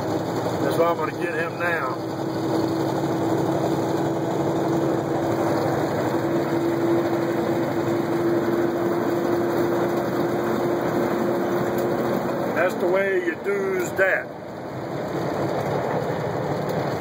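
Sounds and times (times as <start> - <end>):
road noise inside cab: 0.0 - 17.0
truck diesel engine hum: 0.0 - 17.0.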